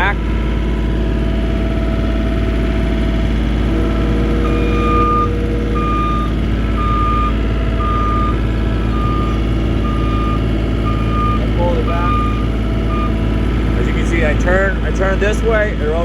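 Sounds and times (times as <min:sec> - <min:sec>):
diesel engine running: 0:00.0 - 0:16.0
backup alarm beeping: 0:03.4 - 0:13.4.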